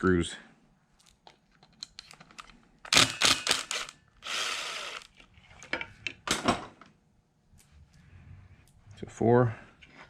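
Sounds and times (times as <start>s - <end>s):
impact driver burst: 2.9s - 5.1s.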